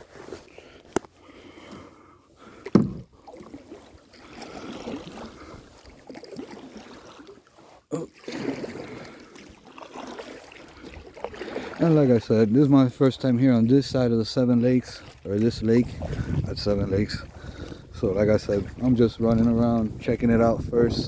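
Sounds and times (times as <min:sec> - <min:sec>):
paddle splashing in water: 0:00.0 - 0:20.4
sharp knock: 0:02.7 - 0:03.0.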